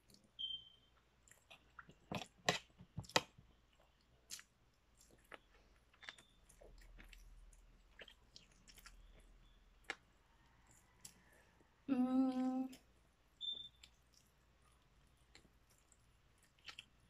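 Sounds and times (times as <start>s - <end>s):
chewing meat with wet clicks: 0.0s - 11.7s, 12.7s - 17.0s.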